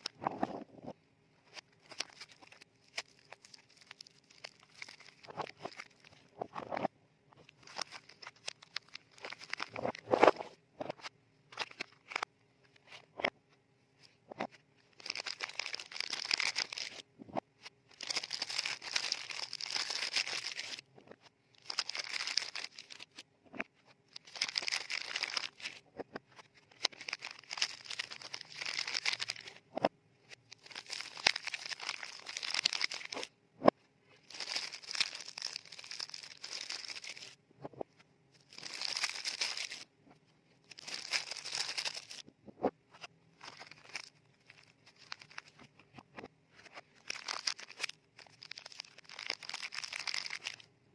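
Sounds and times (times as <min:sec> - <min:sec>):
paper wrapper crinkling: 0:01.5 - 0:06.3, 0:07.4 - 0:10.4, 0:14.9 - 0:17.1, 0:17.9 - 0:20.8, 0:21.6 - 0:23.2, 0:24.1 - 0:29.6, 0:30.3 - 0:33.3, 0:34.2 - 0:37.4, 0:38.4 - 0:39.9, 0:40.6 - 0:42.2, 0:43.4 - 0:50.7.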